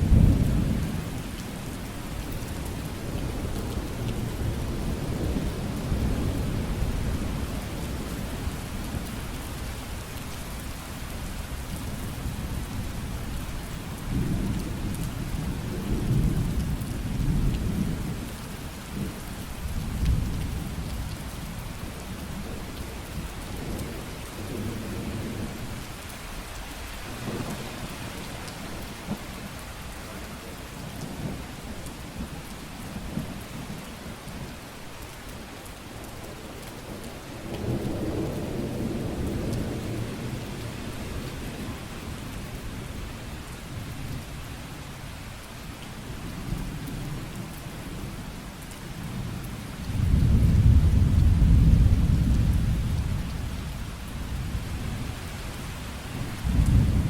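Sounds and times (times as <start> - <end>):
low thunder rumbling: 0.0 - 1.3, 49.1 - 55.1, 56.2 - 57.0.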